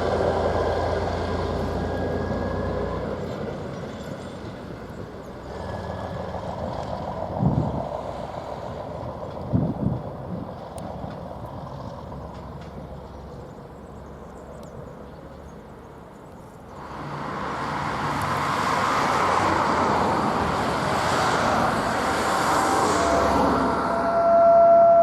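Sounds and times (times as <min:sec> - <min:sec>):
train rumbling by: 0:00.0 - 0:25.0
steady horn tone: 0:22.0 - 0:25.0.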